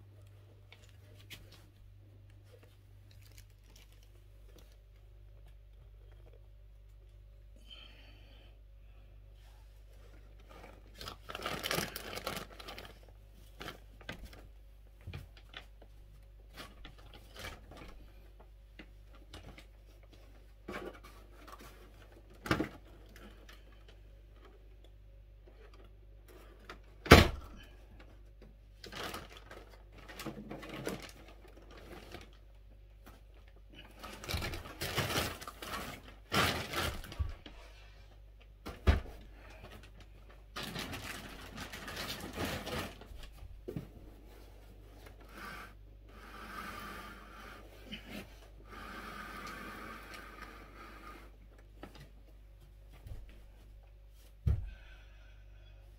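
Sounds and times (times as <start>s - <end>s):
packaging rustling and scraping: 10.2s - 14.4s, 33.9s - 37.6s, 39.5s - 43.4s.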